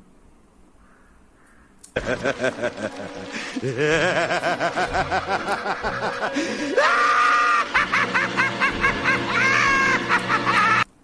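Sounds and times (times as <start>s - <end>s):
man cackling laugh: 2.0s - 10.9s.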